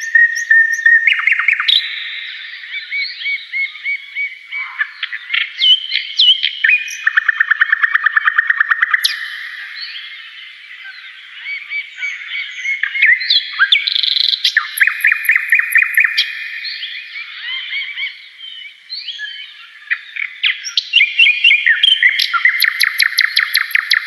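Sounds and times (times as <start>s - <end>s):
songbirds chirping: 0.0s - 24.0s
fast bird trill: 12.0s - 18.0s, 19.9s - 24.0s.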